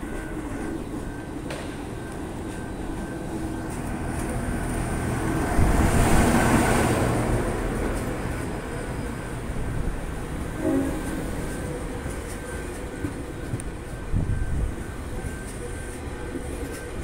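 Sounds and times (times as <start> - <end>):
diesel train passing: 0.0 - 17.0
train wheel noise: 0.0 - 17.0.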